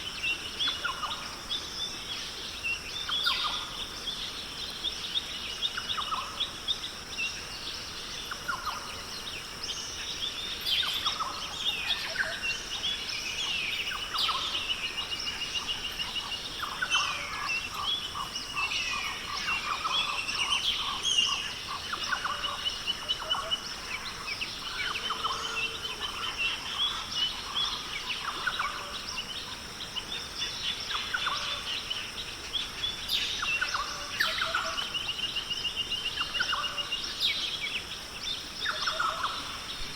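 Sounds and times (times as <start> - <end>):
chorus of birds calling: 8.2 - 39.9.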